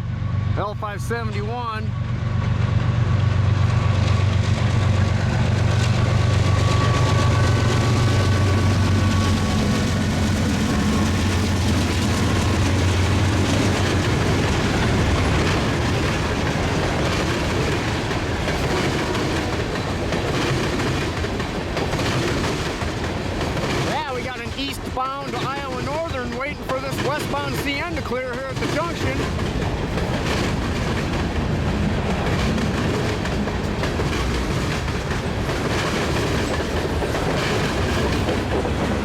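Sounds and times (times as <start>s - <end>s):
diesel locomotive drone: 0.0s - 39.0s
freight cars clacking on rails: 4.2s - 39.0s.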